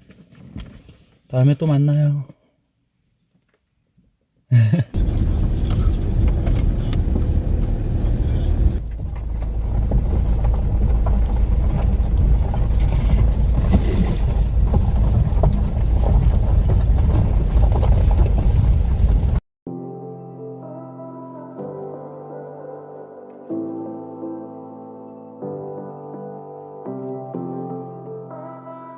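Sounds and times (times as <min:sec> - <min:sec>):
loud low rumble: 0:05.0 - 0:19.4.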